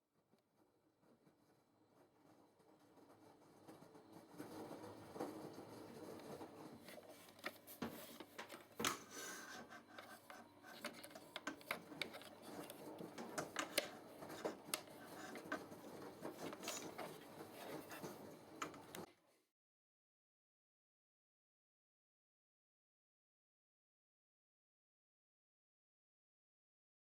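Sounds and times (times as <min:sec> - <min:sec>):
objects rubbing and rustling: 0:01.2 - 0:19.1.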